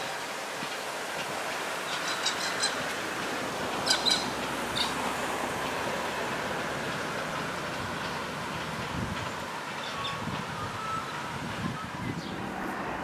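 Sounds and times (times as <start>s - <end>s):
distant train rumbling: 0.0s - 13.0s
high bird chirps: 3.9s - 5.0s.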